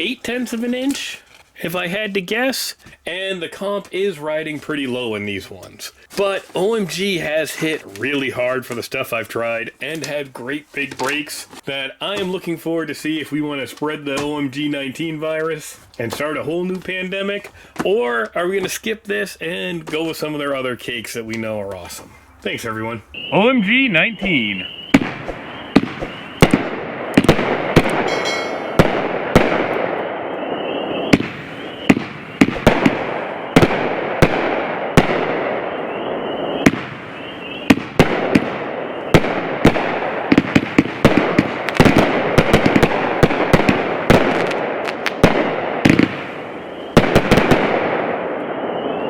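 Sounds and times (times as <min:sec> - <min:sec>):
firework bangs: 0:23.2 - 0:49.0
firework hiss and crackle: 0:28.8 - 0:49.0.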